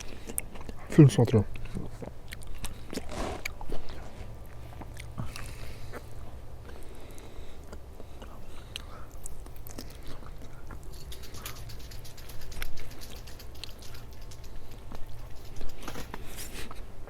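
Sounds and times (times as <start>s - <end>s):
person chewing food: 0.0s - 17.0s
wet mouth clicks and smacks: 2.2s - 3.6s, 7.6s - 15.9s.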